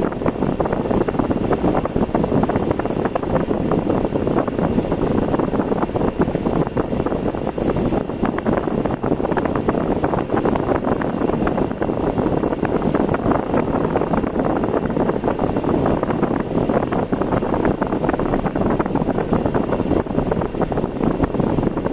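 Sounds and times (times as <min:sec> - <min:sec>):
car road and engine noise: 0:00.0 - 0:21.9
wind buffeting microphone: 0:00.0 - 0:21.9.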